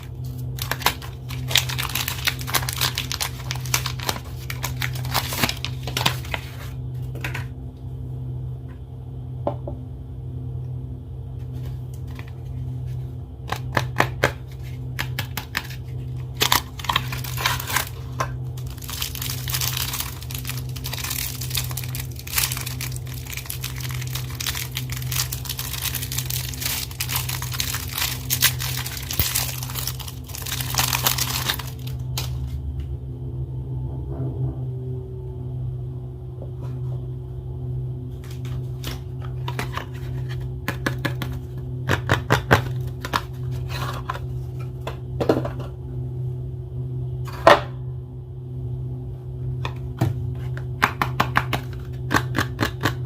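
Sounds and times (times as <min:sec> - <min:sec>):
wrappers crinkled and torn: 0:00.0 - 0:06.5, 0:15.6 - 0:32.5
steady low hum: 0:00.0 - 0:53.0.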